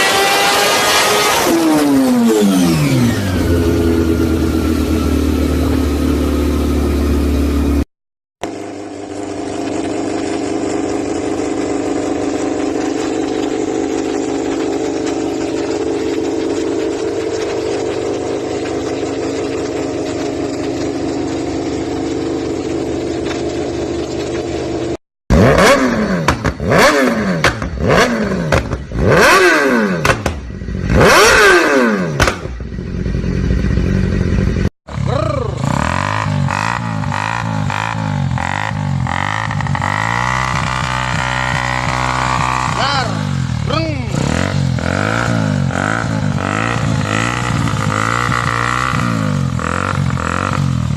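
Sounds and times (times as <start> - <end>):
engine revving hard: 0.0 - 5.6, 25.3 - 32.5, 34.9 - 50.9
motorcycle engine running: 0.0 - 50.9.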